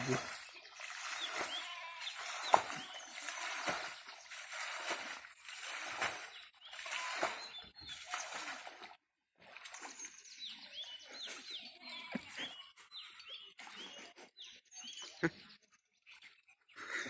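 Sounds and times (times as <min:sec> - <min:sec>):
small birds chirping: 0:00.0 - 0:08.9, 0:09.5 - 0:17.0.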